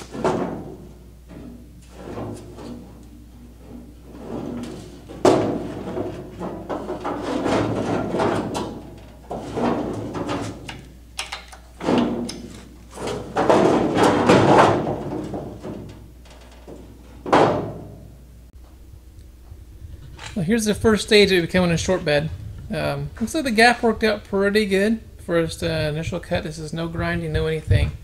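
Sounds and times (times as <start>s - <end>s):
sheet metal scraping and clanking: 0.0s - 11.1s, 11.7s - 18.0s.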